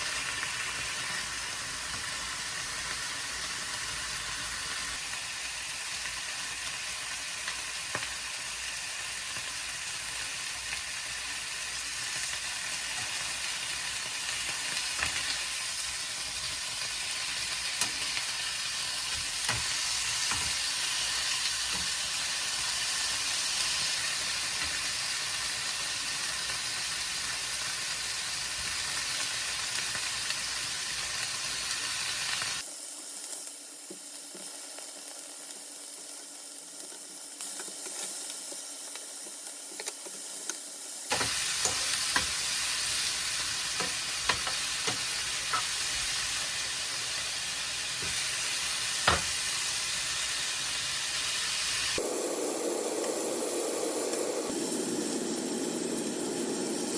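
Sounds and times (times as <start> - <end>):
food sizzling in a pan: 0.0 - 56.9
utensil stirring and tapping pan: 19.0 - 22.2, 41.1 - 46.4, 48.0 - 48.3, 49.0 - 49.4.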